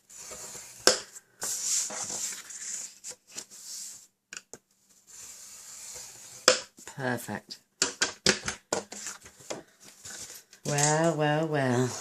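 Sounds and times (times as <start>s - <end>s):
paper rustling: 8.9s - 12.0s.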